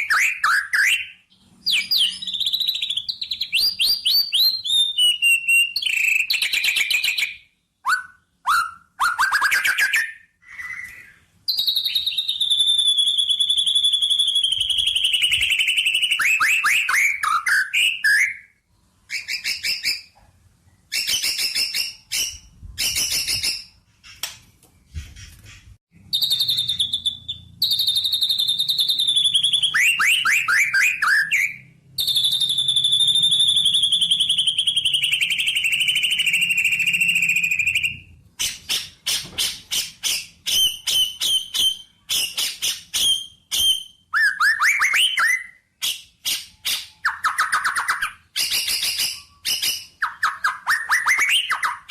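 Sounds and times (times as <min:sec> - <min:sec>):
songbird trilling and chirping: 0:00.0 - 0:08.8, 0:25.4 - 0:45.5.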